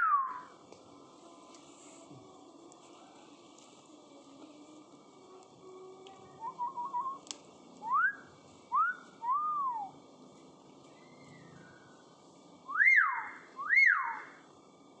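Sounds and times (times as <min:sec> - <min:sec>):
myna whistling: 0:00.0 - 0:00.5, 0:06.4 - 0:07.2, 0:07.8 - 0:09.9, 0:10.9 - 0:12.1, 0:12.7 - 0:14.4.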